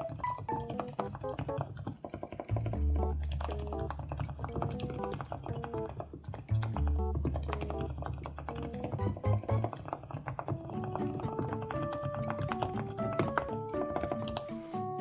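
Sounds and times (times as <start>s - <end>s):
mechanical keyboard typing: 0.0s - 14.7s
light background music: 4.5s - 9.9s, 10.5s - 15.0s.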